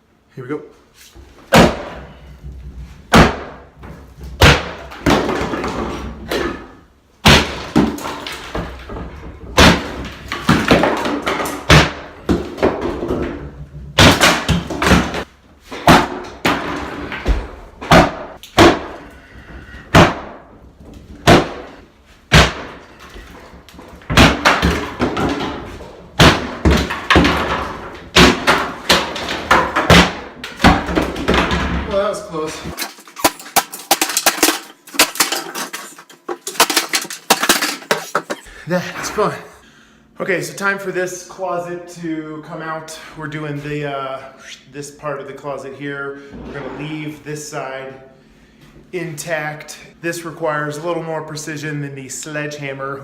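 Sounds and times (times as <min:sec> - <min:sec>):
sledgehammer striking wall: 0:01.5 - 0:02.1, 0:03.1 - 0:03.6, 0:07.2 - 0:08.8, 0:19.9 - 0:20.5, 0:21.2 - 0:23.0, 0:24.0 - 0:31.7
crumbling falling debris: 0:32.7 - 0:38.4.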